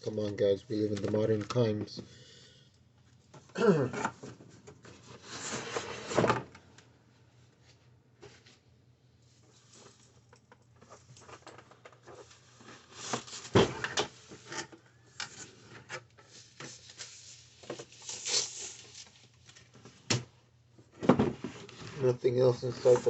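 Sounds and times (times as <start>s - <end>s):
cardboard and paper rustling: 9.5s - 14.7s, 21.1s - 23.0s.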